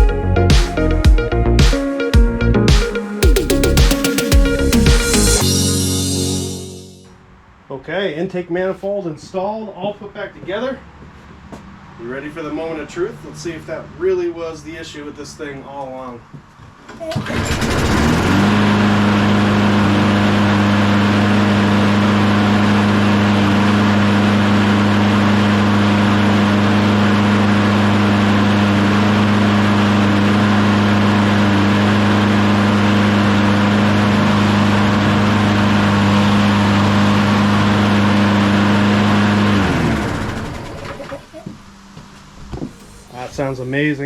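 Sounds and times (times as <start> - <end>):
lawnmower engine running: 3.2 - 6.9, 17.1 - 41.5.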